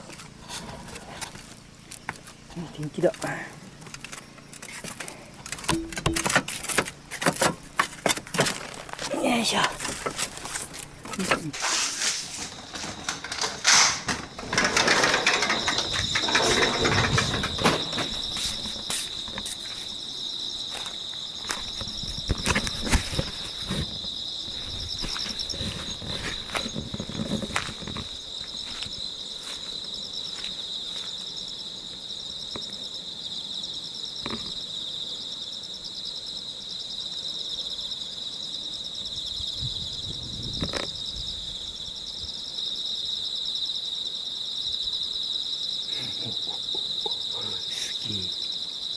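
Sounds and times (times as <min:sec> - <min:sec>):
insects chirring: 0:00.0 - 0:48.9
knocks and scraping from handling: 0:04.0 - 0:09.0, 0:09.7 - 0:19.8.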